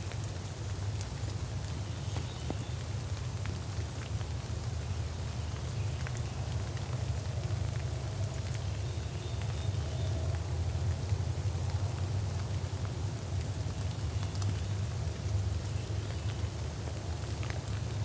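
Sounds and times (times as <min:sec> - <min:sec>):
steady rain: 0:00.0 - 0:18.0
drip ticks: 0:13.8 - 0:14.6.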